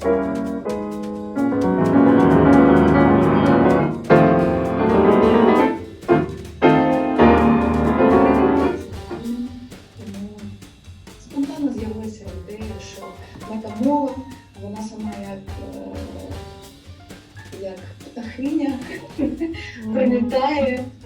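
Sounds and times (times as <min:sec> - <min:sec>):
piano music: 0:00.0 - 0:09.4.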